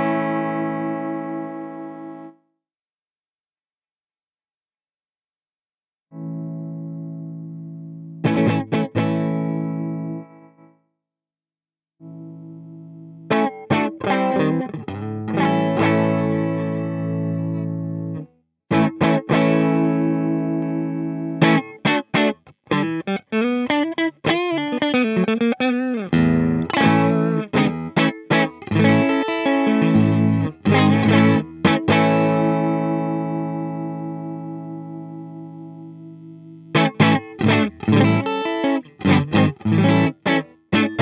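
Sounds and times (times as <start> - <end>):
electric guitar playing: 0.0 - 2.4, 6.1 - 10.7, 12.0 - 41.0.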